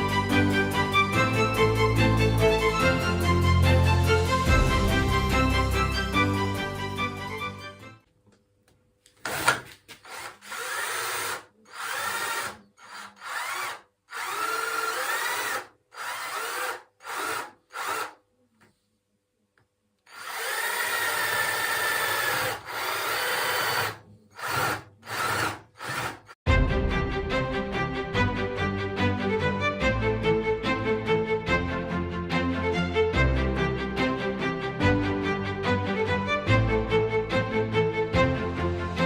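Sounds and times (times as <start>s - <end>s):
electric drill boring into wood: 9.2s - 18.2s, 20.1s - 26.4s.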